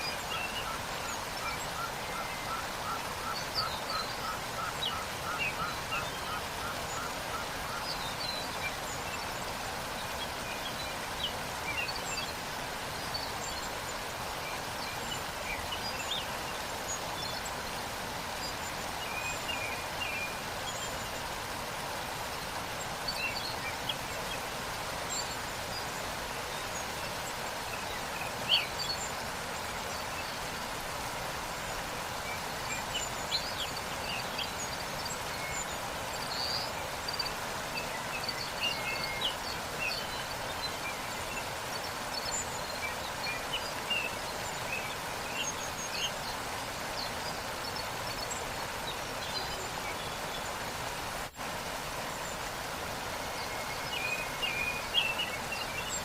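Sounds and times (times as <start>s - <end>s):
small birds chirping: 0.0s - 56.0s
waterfall rushing water: 0.0s - 56.0s.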